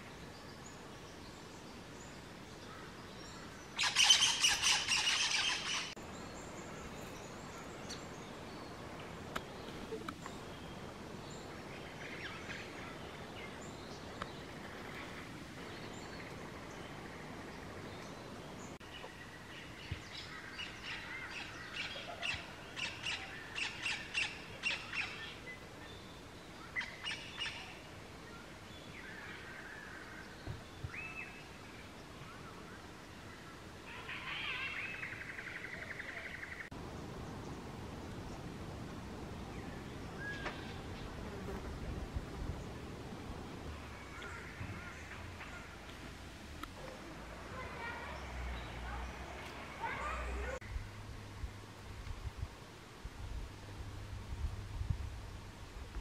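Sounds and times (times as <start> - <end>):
wild birds calling: 2.6 - 26.0, 32.1 - 50.6.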